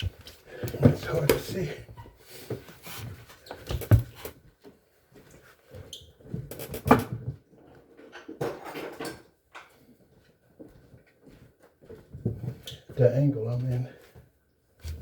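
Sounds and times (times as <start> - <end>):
rustling and scraping: 0.0 - 4.6.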